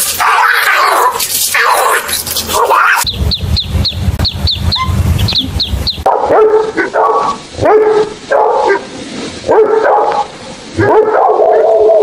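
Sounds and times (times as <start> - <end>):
dog barking: 0.2 - 3.1, 6.0 - 11.7
chicks peeping: 3.0 - 6.1.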